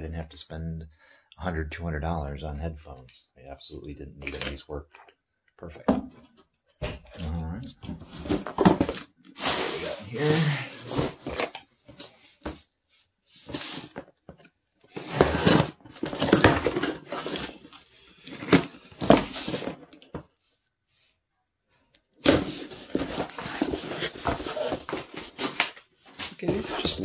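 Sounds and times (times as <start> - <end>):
packaging rustling and crinkling: 15.0 - 19.8, 22.3 - 27.0.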